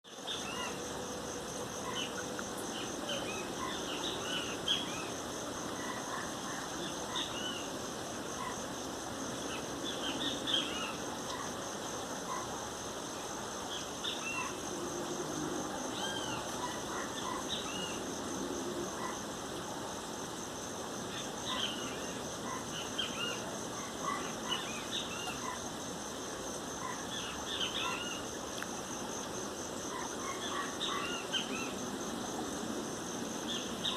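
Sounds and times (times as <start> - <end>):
pulsing insect trill: 0.1 - 19.3.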